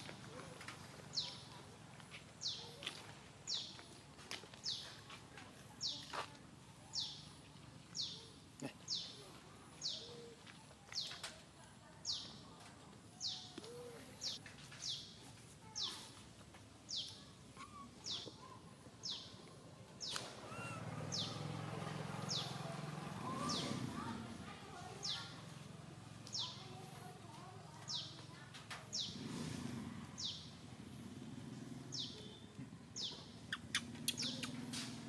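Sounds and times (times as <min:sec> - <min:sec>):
faint low bird calls: 0:16.9 - 0:24.1, 0:31.9 - 0:35.0.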